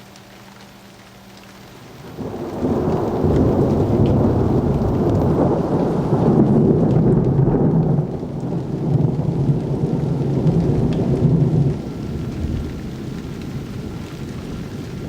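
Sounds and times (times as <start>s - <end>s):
faint rain: 0.0s - 15.0s
thunder rumbling: 1.7s - 15.0s.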